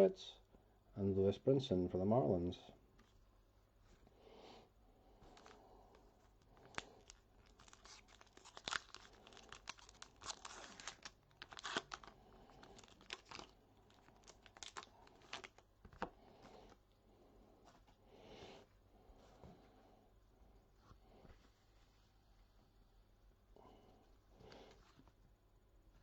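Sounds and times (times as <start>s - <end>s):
wrapper tearing and crinkling: 6.6s - 15.6s.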